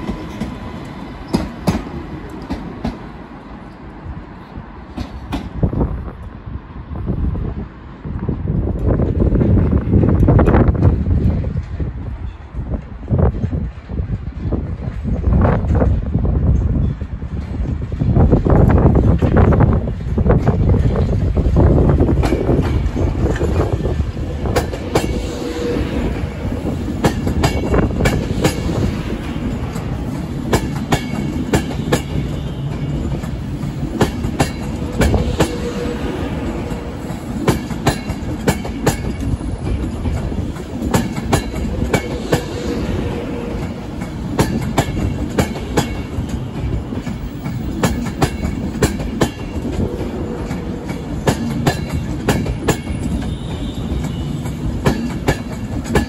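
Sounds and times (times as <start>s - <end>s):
train wheels clicking over rail joints: 0.0s - 3.9s, 4.8s - 5.8s, 8.8s - 56.0s
train rumble: 0.0s - 56.0s.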